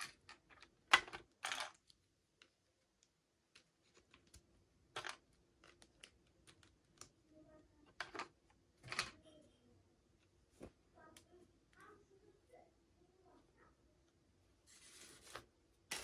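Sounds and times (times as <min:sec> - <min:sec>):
plastic pieces clicking: 0:03.5 - 0:07.1
packaging rustling: 0:14.7 - 0:16.0.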